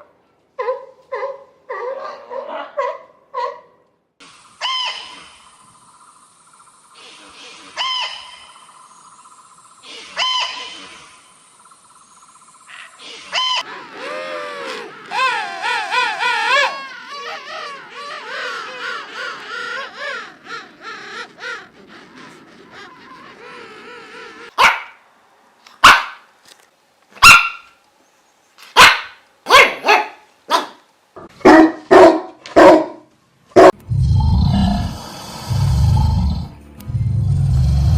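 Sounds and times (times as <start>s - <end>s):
dog barking: 0.6s - 3.8s, 24.6s - 25.0s, 25.8s - 26.2s, 27.2s - 27.7s, 28.8s - 30.8s, 31.4s - 33.0s, 33.6s - 33.8s.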